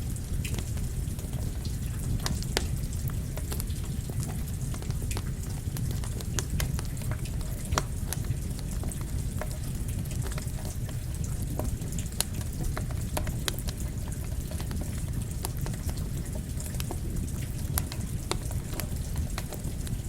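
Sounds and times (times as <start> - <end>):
campfire crackling and popping: 0.0 - 20.0
falling rain: 0.0 - 20.0.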